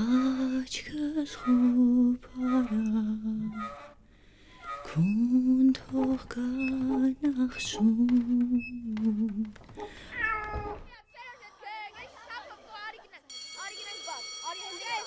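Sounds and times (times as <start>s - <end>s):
woman humming a tune: 0.0s - 3.6s, 4.9s - 9.5s.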